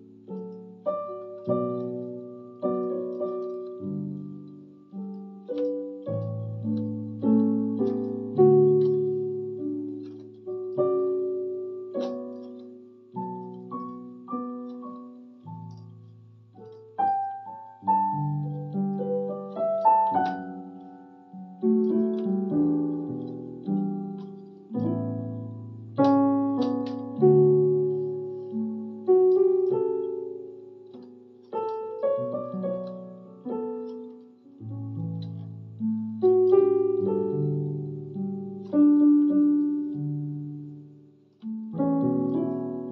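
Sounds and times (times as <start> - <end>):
slow piano melody on keyboard: 0.0 - 42.9.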